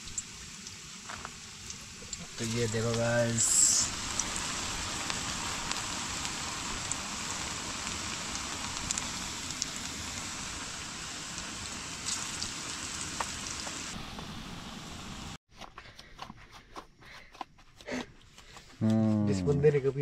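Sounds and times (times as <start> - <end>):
fritters deep-frying in oil: 0.0 - 14.0.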